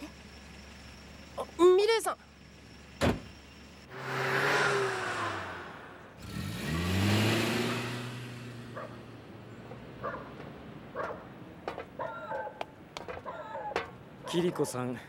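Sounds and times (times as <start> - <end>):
taxi engine pulling away: 2.2 - 10.1.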